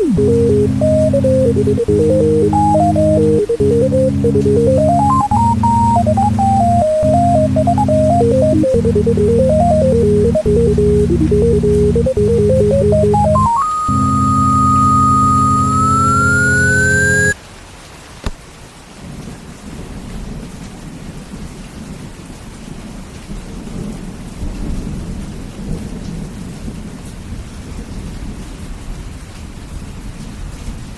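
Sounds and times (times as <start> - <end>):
synth song: 0.0 - 17.4
rain falling: 17.4 - 30.9.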